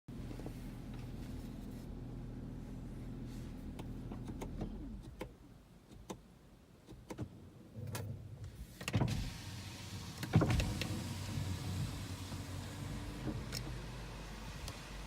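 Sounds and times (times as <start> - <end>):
sharp clicks and knocks: 6.9 - 7.3.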